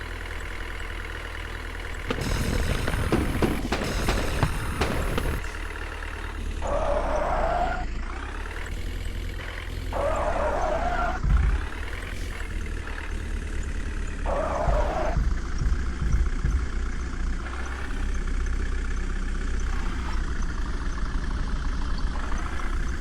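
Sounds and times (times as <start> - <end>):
clatter: 0.0 - 23.0
diesel engine running: 0.0 - 23.0
strained hydraulic whine: 2.0 - 16.1.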